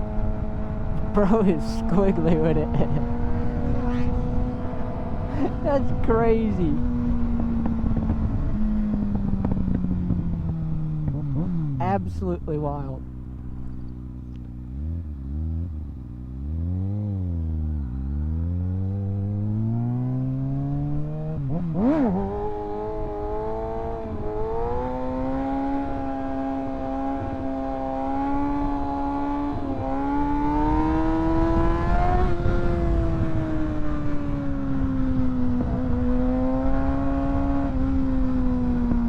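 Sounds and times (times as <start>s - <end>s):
motorcycle engine revving: 0.0s - 39.0s
wind rush on microphone: 29.5s - 39.0s.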